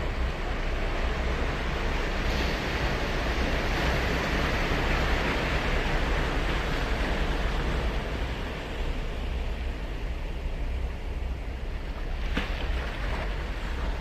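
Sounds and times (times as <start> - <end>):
ocean surf breaking: 0.0 - 10.8.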